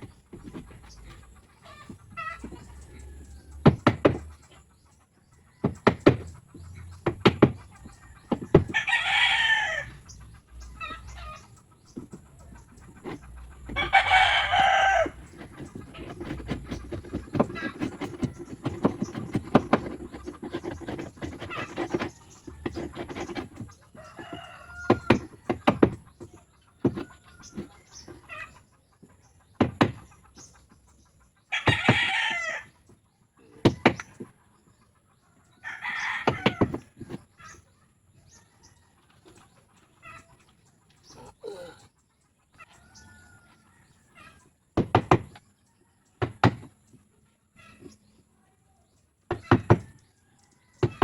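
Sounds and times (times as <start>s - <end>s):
chickens clucking: 0.0s - 51.0s
sharp knocks: 3.6s - 4.3s, 5.6s - 6.4s, 7.0s - 7.7s, 15.3s - 23.6s, 24.8s - 26.0s, 26.8s - 27.7s, 29.6s - 30.0s, 33.6s - 34.1s, 44.8s - 45.4s
rooster crowing: 8.0s - 10.0s, 13.7s - 16.2s, 24.0s - 25.3s, 31.5s - 32.7s.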